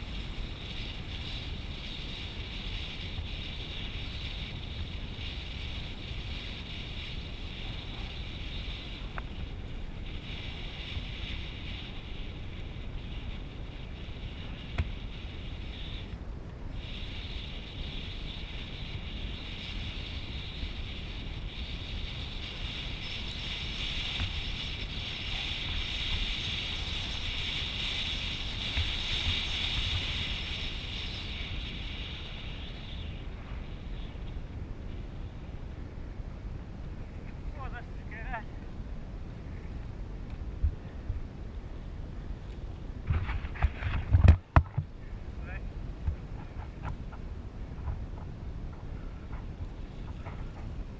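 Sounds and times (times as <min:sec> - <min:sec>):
wind rush on microphone: 0:00.0 - 0:50.9.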